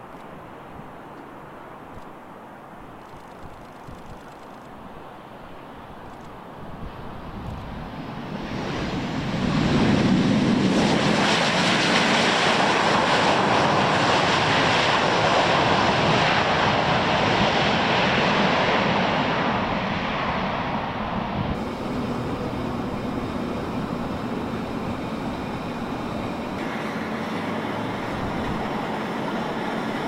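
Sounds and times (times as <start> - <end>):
jet engines of passing aircraft: 6.8 - 30.0.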